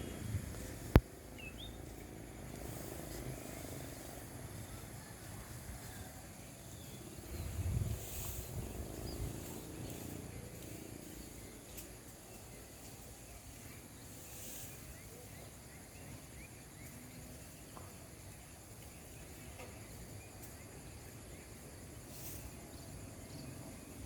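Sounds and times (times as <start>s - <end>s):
steady low rumble: 0.0s - 5.7s.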